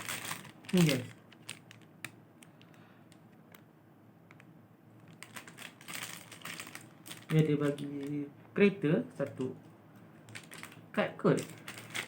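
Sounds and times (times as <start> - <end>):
hands handling toy packaging: 0.0 - 2.8, 5.0 - 8.2, 10.3 - 12.0.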